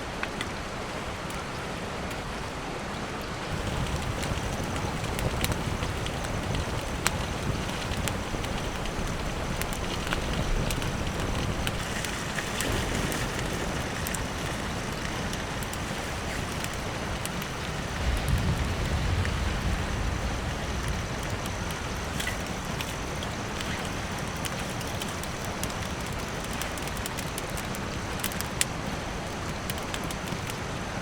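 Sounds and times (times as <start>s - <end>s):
sharp ticks of raindrops: 0.0s - 2.5s, 3.2s - 31.0s
steady rain falling: 0.0s - 31.0s
low rumble: 17.9s - 22.2s.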